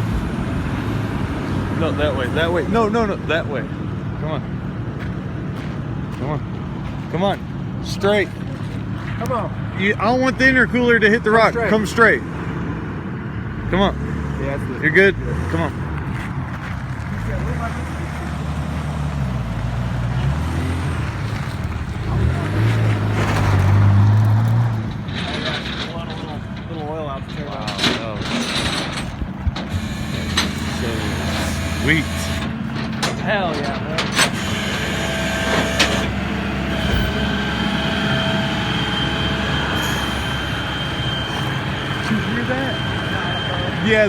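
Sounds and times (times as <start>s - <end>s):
car engine running at low revs: 28.8s - 44.0s.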